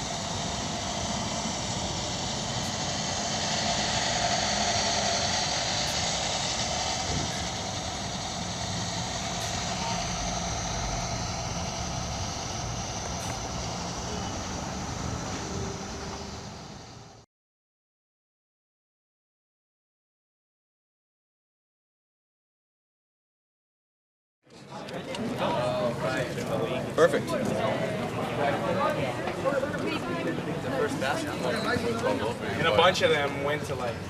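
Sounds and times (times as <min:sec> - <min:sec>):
vehicle engine running: 0:00.0 - 0:17.2.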